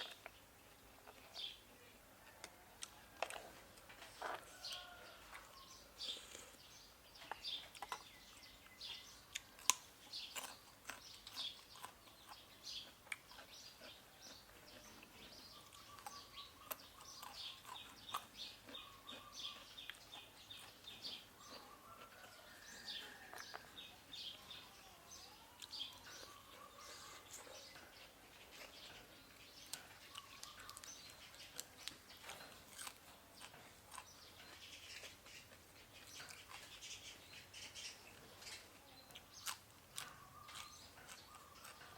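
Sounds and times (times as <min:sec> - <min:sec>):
chewing and crunching food: 0:00.0 - 0:41.9
small birds chirping: 0:00.0 - 0:41.9.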